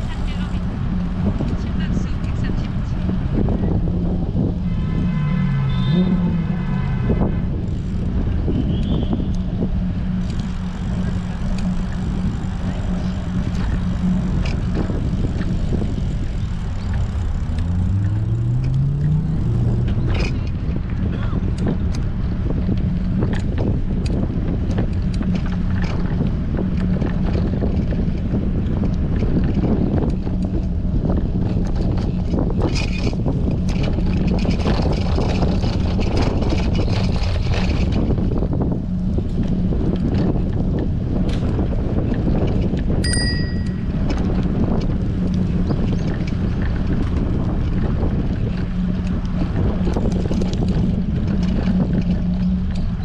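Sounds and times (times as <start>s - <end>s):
bike clicks and rattles: 0.0s - 4.6s, 7.4s - 53.0s
wind buffeting microphone: 0.0s - 53.0s
low droning tone rising: 9.4s - 21.1s.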